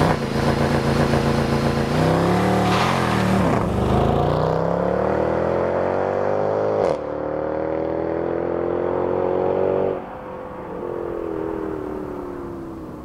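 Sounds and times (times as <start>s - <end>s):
car engine accelerating hard: 0.0s - 10.0s.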